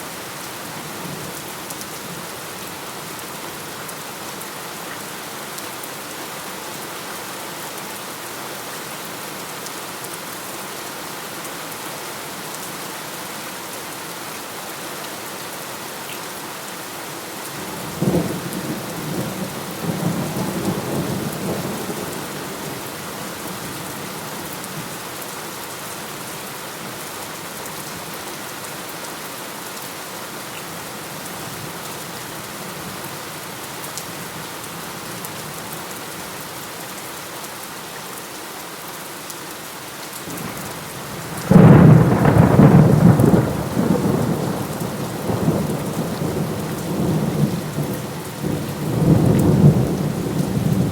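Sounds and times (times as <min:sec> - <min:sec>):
heavy rain hissing: 0:40.2 - 0:50.9.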